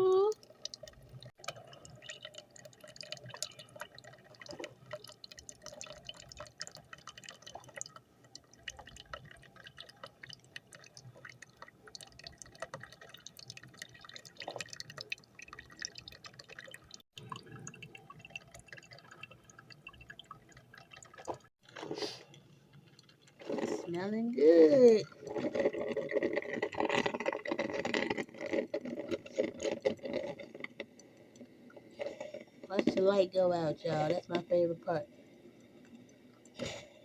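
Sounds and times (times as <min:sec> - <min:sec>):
coffee dripping into carafe: 0:00.0 - 0:21.5.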